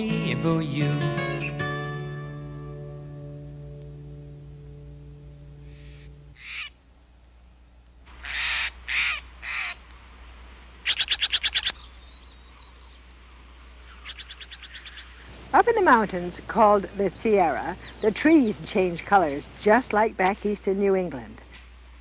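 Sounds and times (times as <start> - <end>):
wild birds calling: 5.5 - 6.8, 8.1 - 9.9, 10.8 - 20.1
bird rattling call: 5.8 - 6.7, 14.0 - 15.3.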